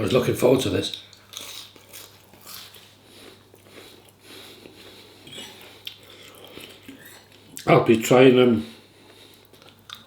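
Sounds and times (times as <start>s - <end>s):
person chewing food: 0.9s - 7.7s, 8.9s - 10.0s.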